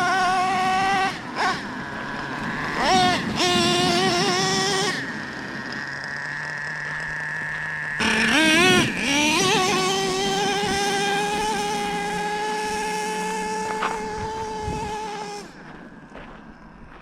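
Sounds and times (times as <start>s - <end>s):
small nitro engine revving: 0.0s - 16.9s.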